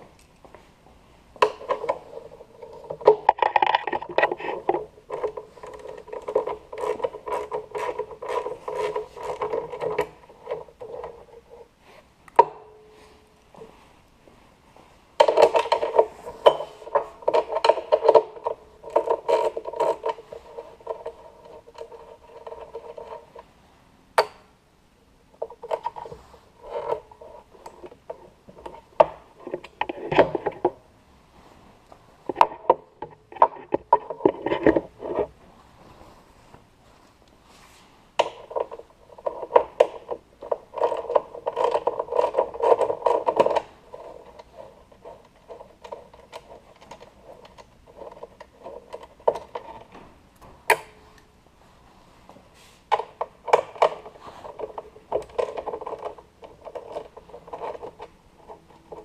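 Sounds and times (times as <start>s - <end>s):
hand tools clicking and scraping: 1.4s - 13.8s, 15.2s - 23.5s, 25.4s - 30.8s, 37.6s - 51.3s, 52.5s - 59.0s.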